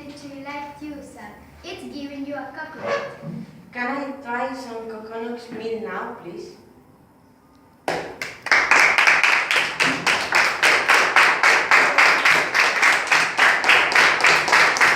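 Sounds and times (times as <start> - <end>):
hands clapping: 7.8 - 14.9.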